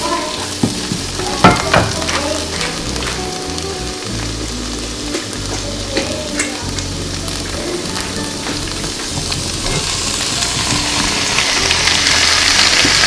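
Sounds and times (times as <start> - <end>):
onions sizzling in a skillet: 0.0 - 13.0
wooden spatula knocking pan: 0.6 - 2.8.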